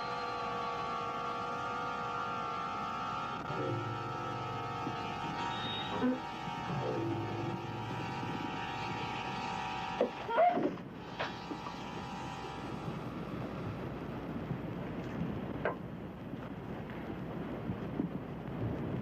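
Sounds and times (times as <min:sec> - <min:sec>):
held drone of steady tones: 0:00.0 - 0:15.5
wind-like noise: 0:10.6 - 0:19.0.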